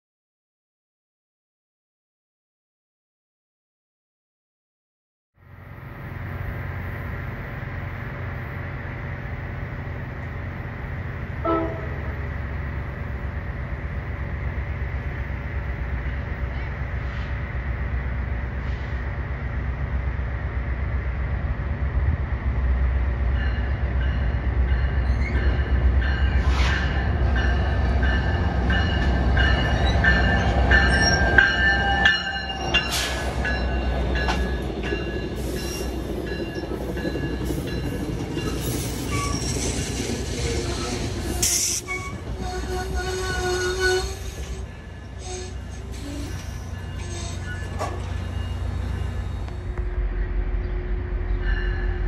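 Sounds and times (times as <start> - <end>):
diesel train passing: 5.4 - 52.0
train squealing: 15.2 - 17.5, 23.4 - 52.0.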